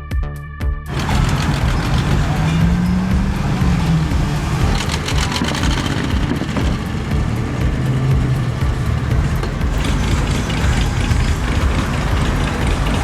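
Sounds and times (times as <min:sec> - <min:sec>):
cars cruising past: 0:00.9 - 0:13.0
engine pitch rising: 0:00.9 - 0:13.0.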